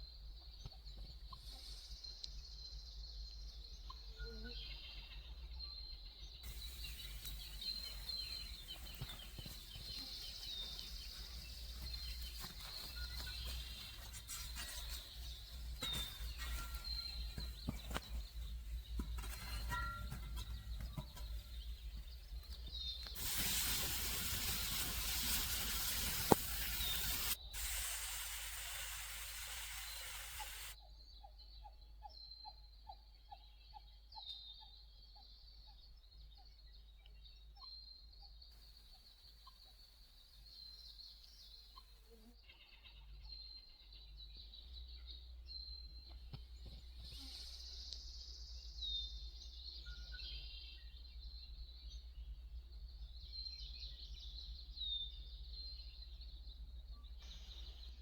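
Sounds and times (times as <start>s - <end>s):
high bird chirps: 6.5s - 30.8s
steady hiss: 6.5s - 30.8s.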